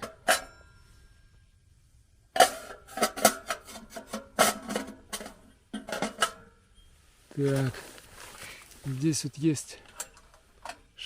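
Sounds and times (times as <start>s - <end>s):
metal stove parts clanking: 0.0s - 0.9s, 2.3s - 6.9s.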